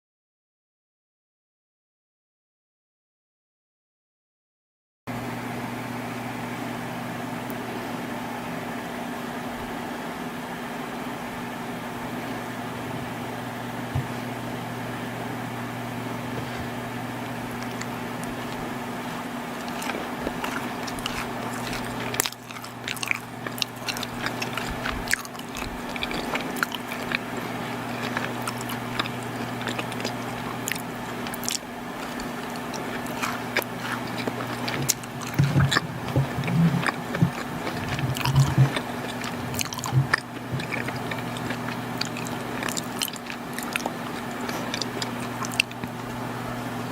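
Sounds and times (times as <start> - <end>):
low hum: 12.4 - 46.9
chewing soft baked goods: 16.1 - 46.9.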